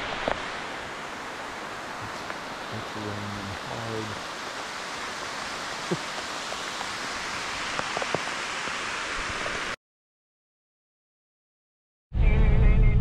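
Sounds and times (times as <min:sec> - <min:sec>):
hard rain on trees: 0:00.0 - 0:09.8
raindrops tapping close by: 0:05.0 - 0:08.8.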